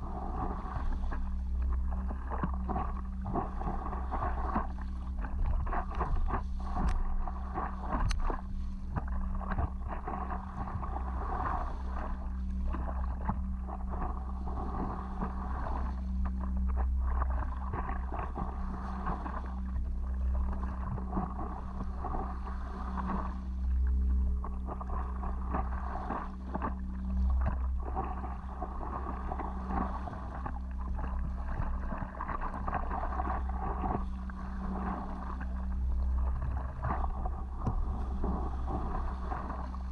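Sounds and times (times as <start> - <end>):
wind on microphone: 0.0 - 16.0, 27.4 - 39.9
faint low hum: 0.0 - 39.9
water splashing and lapping: 0.0 - 39.9.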